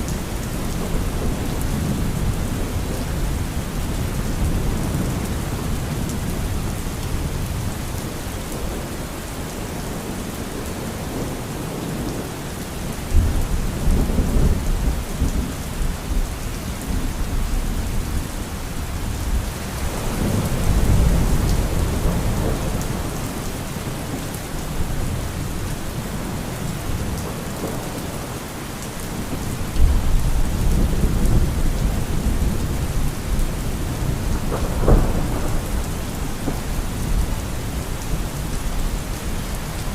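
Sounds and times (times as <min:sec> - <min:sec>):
steady rain falling: 0:00.0 - 0:39.9
thunder rumbling: 0:29.2 - 0:39.9.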